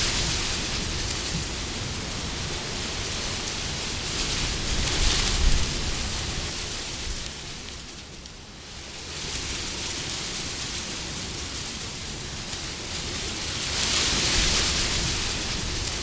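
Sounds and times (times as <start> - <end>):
wind blowing in gusts: 0.0 - 16.0.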